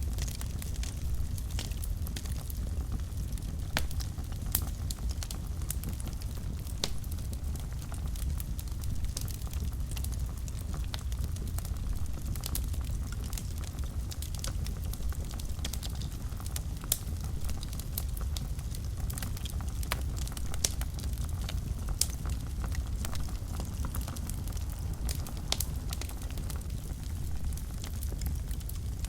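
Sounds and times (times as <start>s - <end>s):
fire crackles and pops: 0.0s - 29.0s
low rumble of flames: 0.0s - 29.0s.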